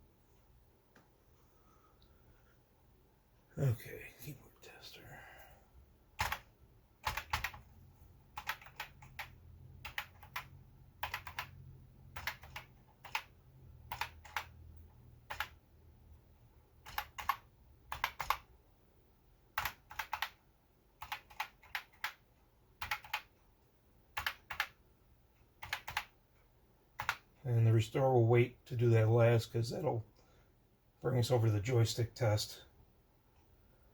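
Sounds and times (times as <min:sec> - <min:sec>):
faint low hum: 0:00.0 - 0:33.9
keyboard keys clicking: 0:06.2 - 0:06.4, 0:07.0 - 0:07.6, 0:08.4 - 0:11.5, 0:12.1 - 0:13.3, 0:13.9 - 0:14.5, 0:15.3 - 0:15.6, 0:16.8 - 0:18.5, 0:19.6 - 0:20.4, 0:21.0 - 0:22.2, 0:22.8 - 0:23.4, 0:24.2 - 0:24.8, 0:25.6 - 0:26.1.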